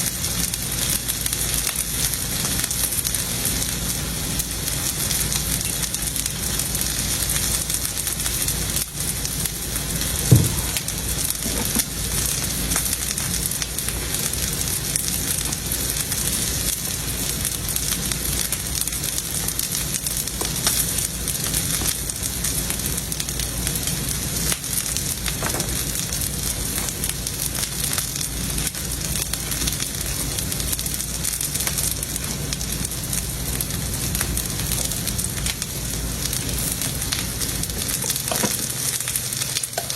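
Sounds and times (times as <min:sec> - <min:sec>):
steak sizzling on a griddle: 0:00.0 - 0:39.9
short knock: 0:10.3 - 0:10.8.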